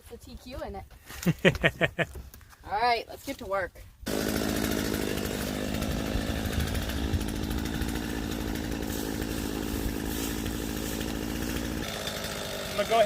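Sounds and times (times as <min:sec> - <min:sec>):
chainsaw engine running: 0:04.1 - 0:13.0.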